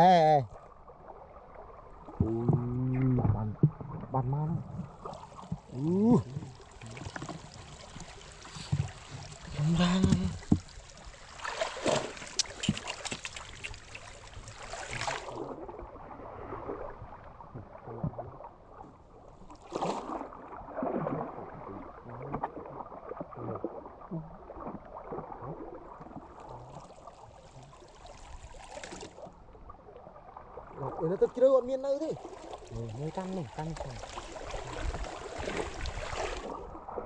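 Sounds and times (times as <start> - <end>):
water splashing and sloshing: 0.4 - 37.0
small knocks and clicks: 12.3 - 14.1.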